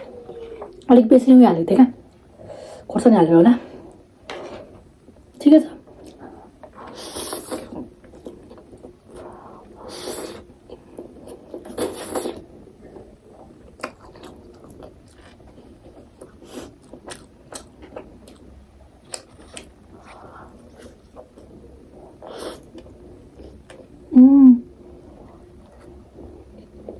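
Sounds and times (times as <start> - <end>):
chewing with mouth clicks: 13.7 - 21.5.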